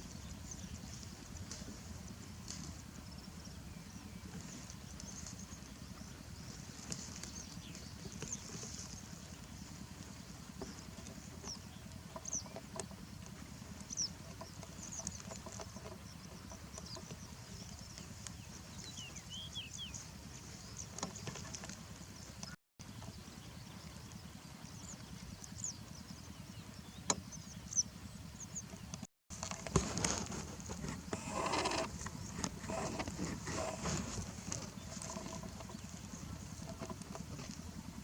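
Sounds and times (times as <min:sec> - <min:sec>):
steady low rumble: 0:00.0 - 0:15.4
small birds chirping: 0:00.0 - 0:38.0.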